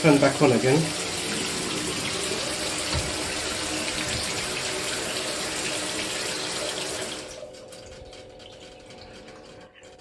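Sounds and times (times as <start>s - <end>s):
shower water spraying: 0.1s - 7.4s.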